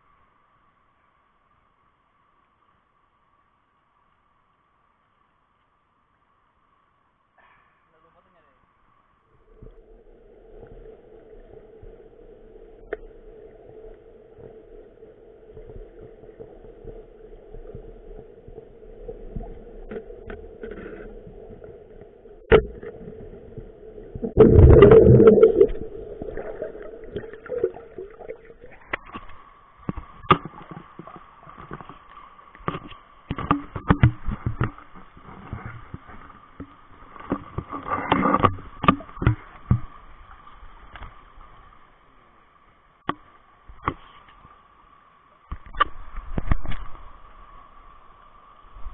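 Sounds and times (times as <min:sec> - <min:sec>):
underwater river hum: 0:00.0 - 0:48.9
loud gurgling water rush: 0:24.2 - 0:28.8.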